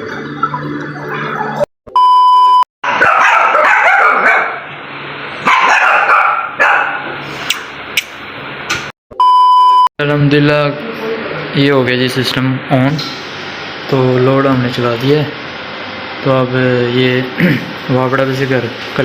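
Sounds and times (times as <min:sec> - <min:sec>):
long steady beep: 0:01.9 - 0:02.7, 0:09.1 - 0:09.9
dog barking: 0:02.9 - 0:04.7, 0:05.4 - 0:07.1.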